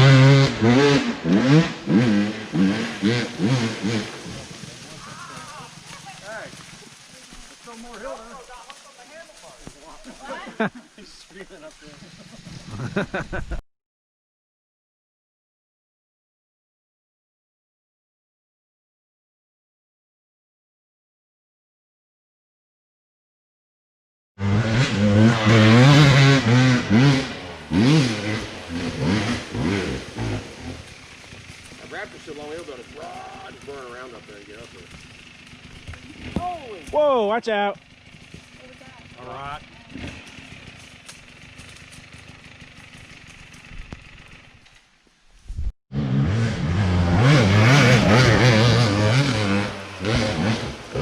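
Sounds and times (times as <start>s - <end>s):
dirt bike engine revving: 0.0s - 8.4s, 11.3s - 13.3s, 24.4s - 44.7s, 45.9s - 51.0s.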